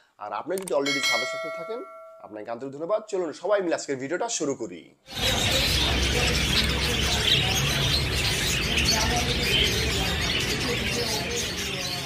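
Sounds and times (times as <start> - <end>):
lovebirds chattering: 5.1 - 12.0.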